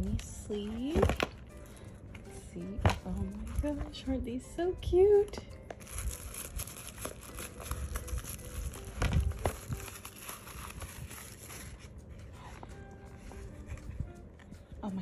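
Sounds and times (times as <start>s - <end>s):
packaging crinkling: 5.6s - 12.0s.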